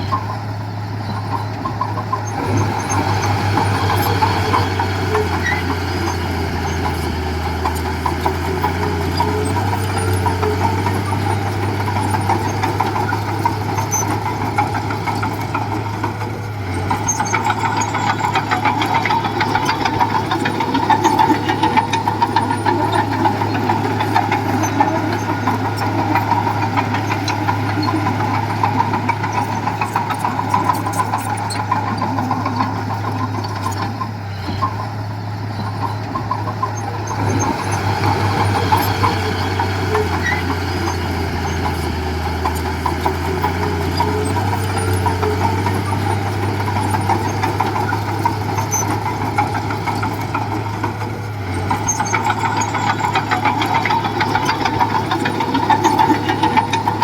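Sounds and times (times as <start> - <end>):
heavy machinery diesel engine: 0.0 - 57.0
metallic clatter: 1.2 - 57.0.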